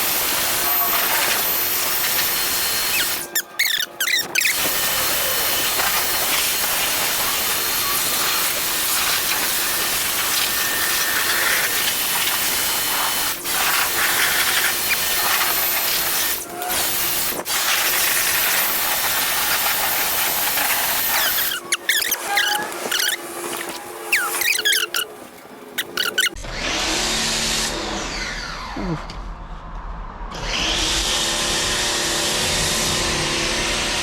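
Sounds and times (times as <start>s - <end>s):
pressure washer spray hissing: 0.0s - 23.2s.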